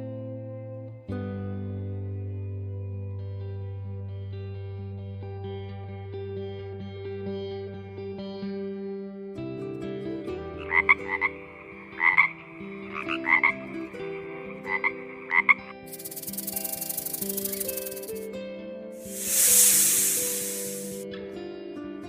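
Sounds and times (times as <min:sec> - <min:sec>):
background music: 0:09.9 - 0:18.3
pulsing rasping hiss: 0:11.9 - 0:18.2, 0:19.0 - 0:21.0.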